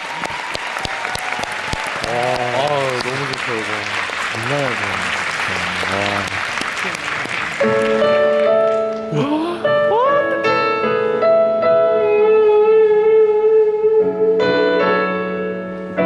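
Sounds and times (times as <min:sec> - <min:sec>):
keyboard piano chords: 0:07.6 - 0:16.0.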